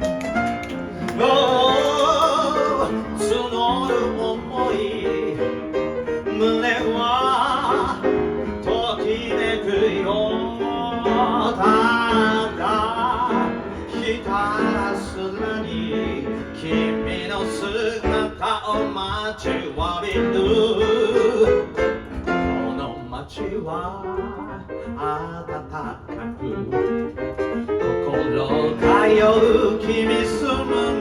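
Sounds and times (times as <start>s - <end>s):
piano chords: 0.0s - 31.0s
person singing with vibrato: 0.9s - 21.8s, 28.0s - 31.0s.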